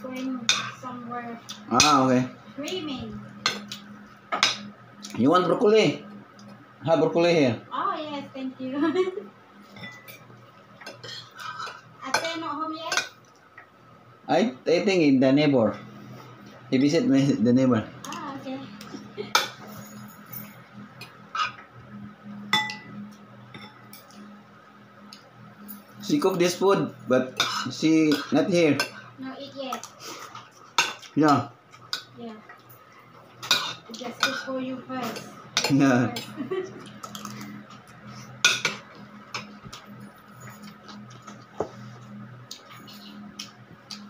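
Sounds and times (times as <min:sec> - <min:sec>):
steady low hum: 0:00.0 - 0:44.0
cutlery clinking on plates: 0:09.7 - 0:12.3, 0:33.4 - 0:34.5, 0:35.1 - 0:37.6, 0:38.4 - 0:41.4
utensils clinking on a plate: 0:09.7 - 0:13.2, 0:19.3 - 0:21.6, 0:27.3 - 0:29.0, 0:29.7 - 0:41.5.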